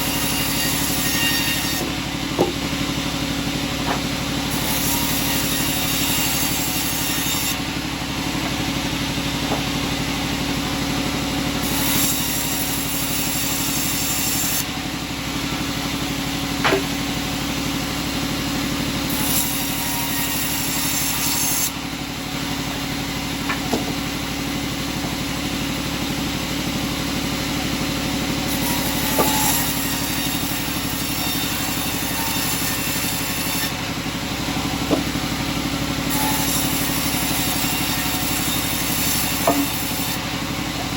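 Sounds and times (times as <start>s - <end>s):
sawmill machinery running: 0.0s - 40.9s
sharp knocks of wood: 1.8s - 2.7s, 3.8s - 4.2s, 9.4s - 9.8s, 16.6s - 17.1s, 23.4s - 24.0s, 34.8s - 35.3s, 39.4s - 39.8s.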